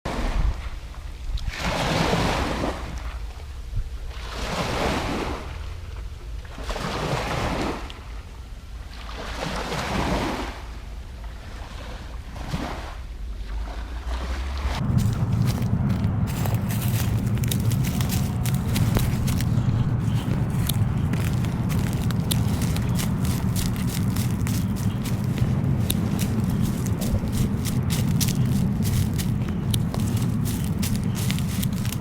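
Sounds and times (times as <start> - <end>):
wind rumble on microphone: 11.5 - 32.0
small waves washing: 13.5 - 32.0.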